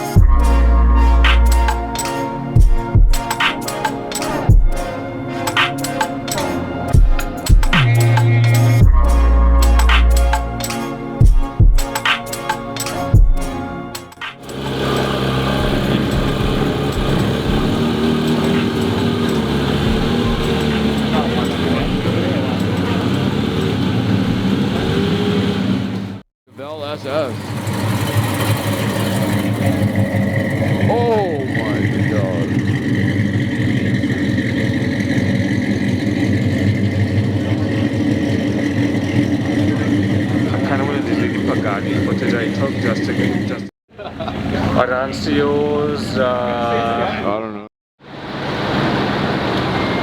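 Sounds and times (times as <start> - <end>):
burst of music: 0.0 - 23.2
car engine running at low revs: 14.4 - 26.2, 26.8 - 43.7.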